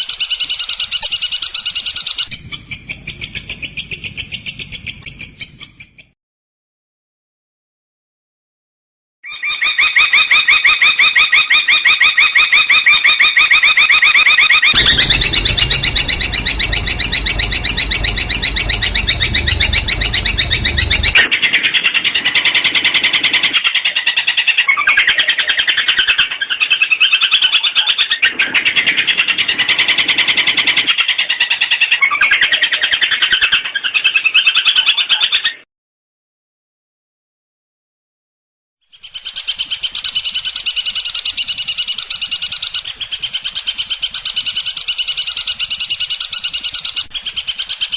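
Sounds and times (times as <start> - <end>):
bird singing chattering notes: 0.0 - 6.0, 14.7 - 21.2
low rumble: 14.8 - 21.3.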